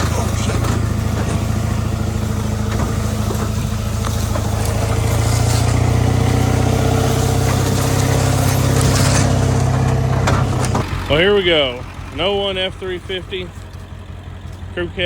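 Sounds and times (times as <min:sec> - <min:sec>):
pickup truck engine under load: 0:00.0 - 0:15.0.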